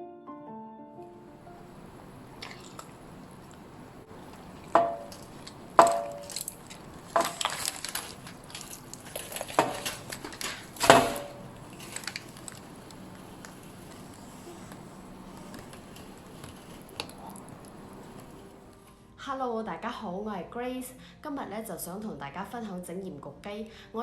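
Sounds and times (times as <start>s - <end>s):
kitchenware knocking and clinking: 4.2s - 11.9s.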